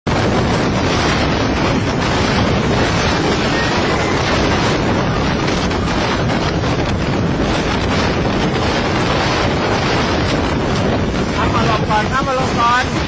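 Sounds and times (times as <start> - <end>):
storm wind buffeting microphone: 0.1 - 13.0.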